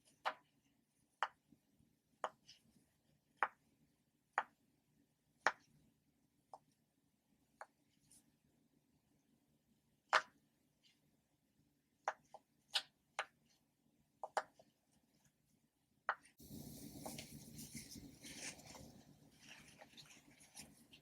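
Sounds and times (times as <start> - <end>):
rustling scraping handling noise: 16.4 - 21.0.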